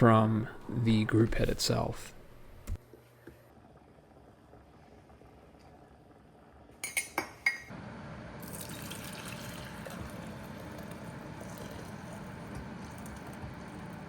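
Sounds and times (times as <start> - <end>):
running or bubbling water: 8.4 - 14.0.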